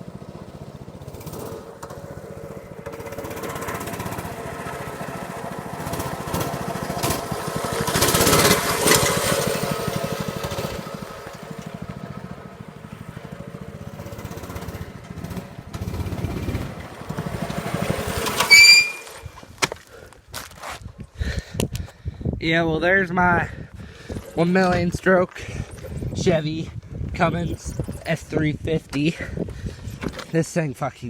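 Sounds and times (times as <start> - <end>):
dirt bike engine revving: 0.0 - 19.4
sharp high squeal: 18.4 - 19.3.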